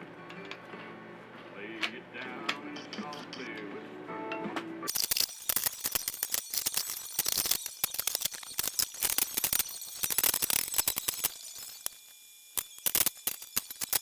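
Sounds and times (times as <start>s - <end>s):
welding arc crackling: 4.9s - 14.0s.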